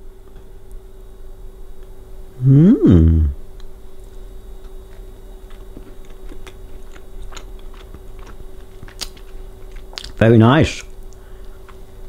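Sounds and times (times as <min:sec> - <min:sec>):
person chewing soft cake: 0:03.5 - 0:10.2, 0:10.8 - 0:12.0
wet mouth clicks: 0:05.5 - 0:10.2.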